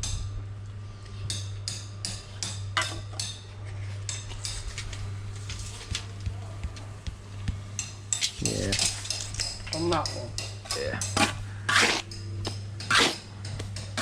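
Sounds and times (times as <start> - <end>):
steady low hum: 0.0 - 14.0
trowel scraping mortar: 11.1 - 12.1, 12.8 - 13.2.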